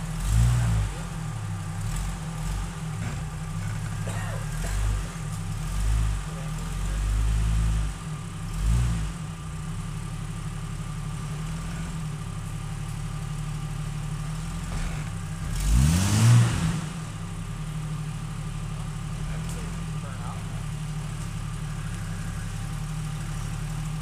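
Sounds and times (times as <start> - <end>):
engine idling and revving: 0.0 - 24.0.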